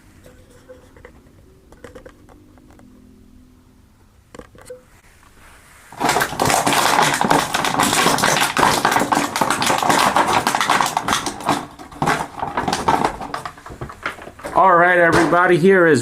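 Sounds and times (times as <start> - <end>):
plastic packaging crinkling: 5.9 - 15.6.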